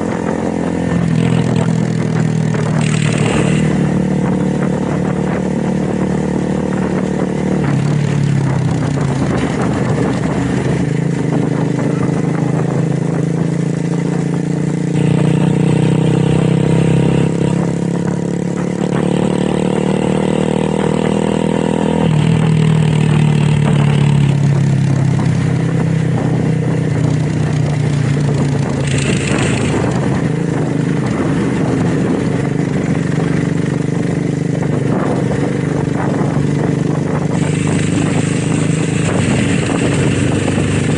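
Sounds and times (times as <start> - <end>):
motorcycle engine droning: 0.0 - 40.9.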